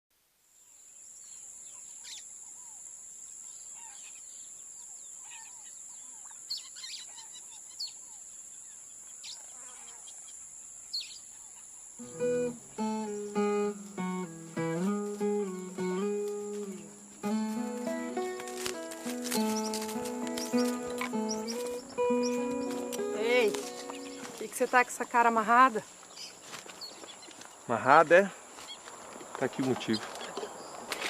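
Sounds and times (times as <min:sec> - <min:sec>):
birds chirping: 0:03.4 - 0:31.0
acoustic guitar picking notes: 0:12.0 - 0:25.8.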